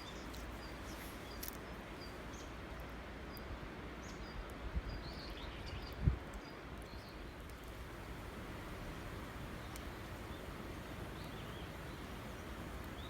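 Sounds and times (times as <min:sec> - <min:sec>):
outdoor background noise: 0:00.0 - 0:13.0
small bird chirping: 0:06.9 - 0:13.0.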